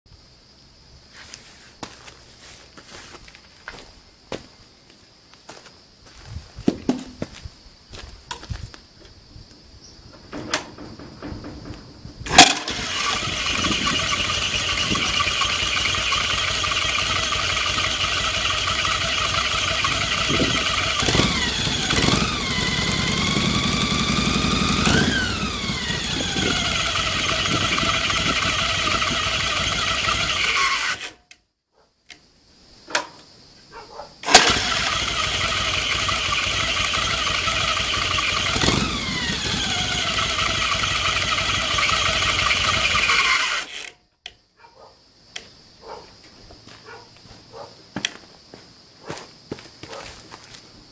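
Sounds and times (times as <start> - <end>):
motorcycle engine starting and revving: 10.2 - 31.2, 34.2 - 43.9.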